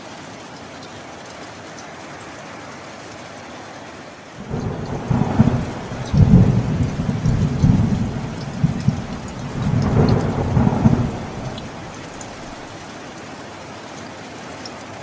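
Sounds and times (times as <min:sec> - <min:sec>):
steady rain falling: 0:00.0 - 0:15.0
deep rolling thunder: 0:04.4 - 0:12.8.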